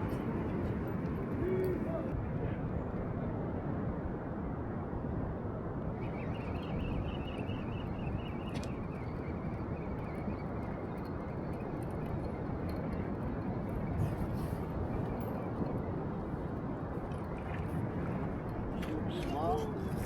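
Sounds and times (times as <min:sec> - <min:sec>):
wind: 0:00.0 - 0:20.0
sea noise: 0:13.2 - 0:20.0.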